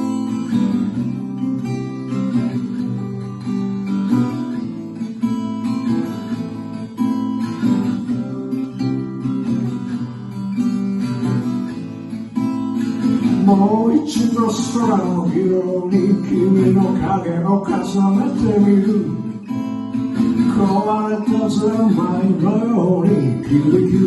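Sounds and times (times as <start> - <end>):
acoustic guitar strumming: 0.0 - 24.0
person singing: 13.2 - 19.4, 20.4 - 24.0.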